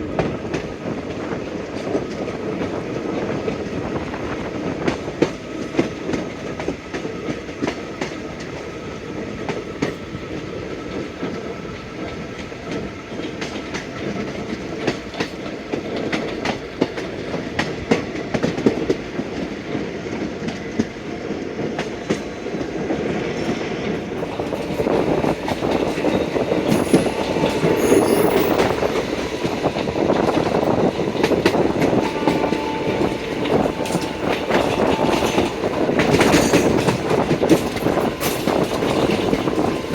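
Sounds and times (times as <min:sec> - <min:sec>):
train rumble: 0:00.0 - 0:39.9
train wheels clattering: 0:12.1 - 0:39.9.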